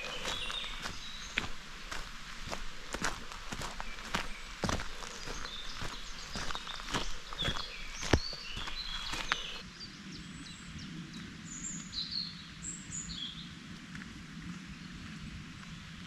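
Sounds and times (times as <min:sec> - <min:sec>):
footsteps: 0:00.0 - 0:09.6
small birds chirping: 0:00.0 - 0:13.5.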